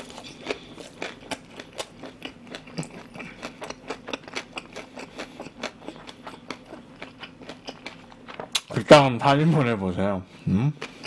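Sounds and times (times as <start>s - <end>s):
crisp crunchy chewing: 0.0s - 8.8s.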